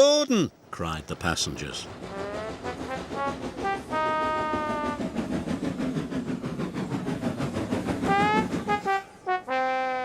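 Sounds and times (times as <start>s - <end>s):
steam engine running: 1.1s - 9.5s
steam locomotive whistle: 2.1s - 5.0s, 8.1s - 10.0s.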